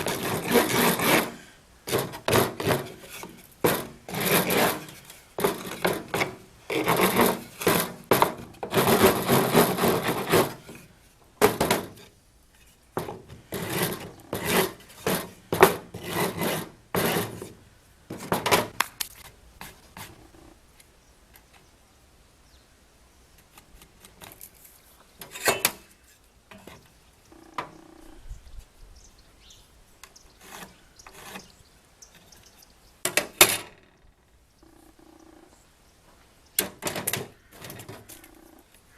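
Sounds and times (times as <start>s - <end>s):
hand tool rasping on wood: 0.0s - 10.8s, 13.5s - 17.5s, 30.4s - 31.5s
knocks and scrapes: 0.0s - 20.4s, 23.4s - 27.0s, 30.4s - 31.6s, 36.6s - 38.4s.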